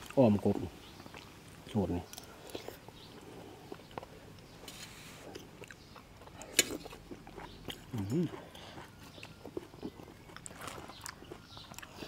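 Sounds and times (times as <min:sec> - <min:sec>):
person chewing: 0:01.0 - 0:12.0.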